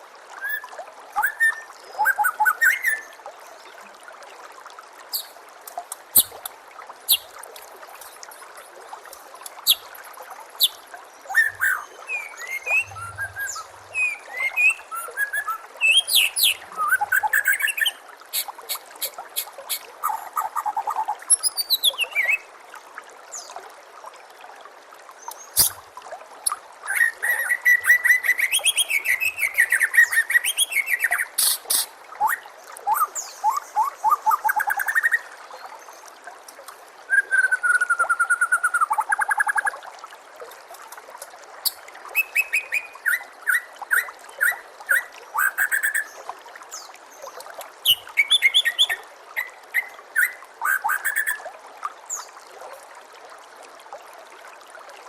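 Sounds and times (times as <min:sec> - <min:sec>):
water trickling: 0:00.0 - 0:55.0
bird whistling and trilling: 0:00.4 - 0:03.1, 0:11.3 - 0:18.0, 0:21.3 - 0:22.4, 0:37.1 - 0:39.5, 0:42.2 - 0:46.1, 0:47.9 - 0:51.4.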